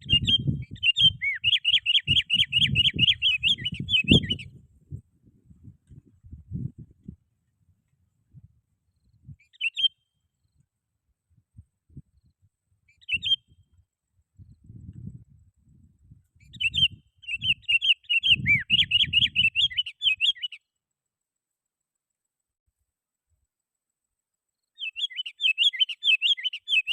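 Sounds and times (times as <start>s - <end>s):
bird chirping and chattering: 0.0s - 4.4s, 16.4s - 20.6s, 24.8s - 26.9s.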